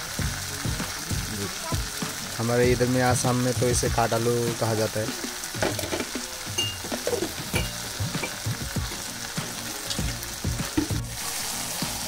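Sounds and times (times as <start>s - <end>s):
food sizzling in a pan: 0.0s - 12.0s
spoon scraping and knocking pan: 5.6s - 8.5s.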